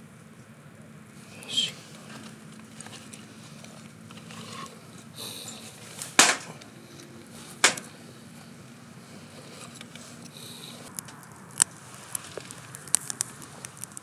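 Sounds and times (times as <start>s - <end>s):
campfire: 0.0s - 14.0s
sharp wooden cracks: 5.3s - 6.7s, 7.6s - 8.0s, 10.8s - 14.0s.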